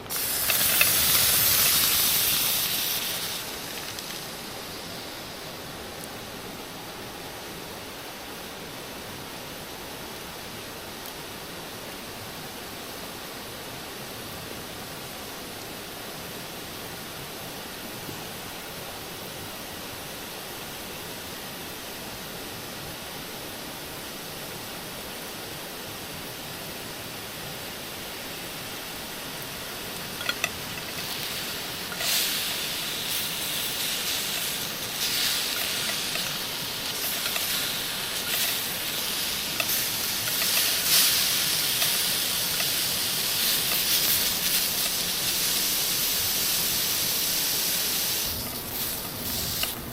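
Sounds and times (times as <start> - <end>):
food sizzling in a hot pan: 0.0 - 6.0, 28.2 - 49.9
steady hiss: 0.0 - 49.9.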